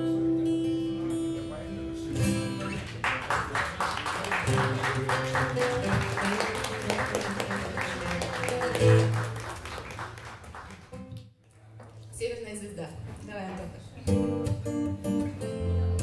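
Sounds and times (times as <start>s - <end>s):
acoustic guitar notes: 0.0s - 3.0s, 4.4s - 9.4s, 14.0s - 16.0s
audience clapping: 2.6s - 12.1s.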